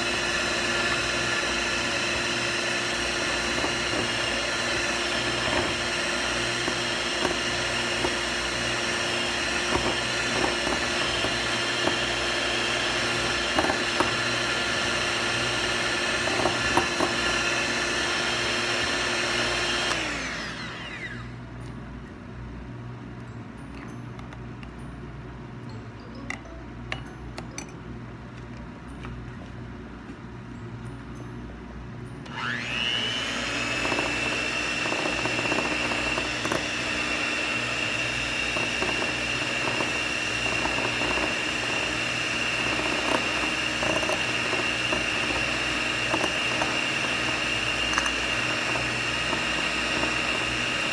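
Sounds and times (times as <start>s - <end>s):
milk frother motor humming: 0.0s - 21.5s, 32.2s - 50.9s.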